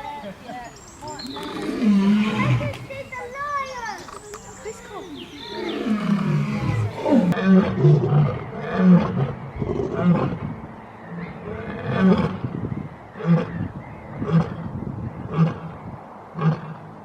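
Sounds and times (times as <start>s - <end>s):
lion roaring: 1.4s - 2.8s, 5.6s - 10.4s.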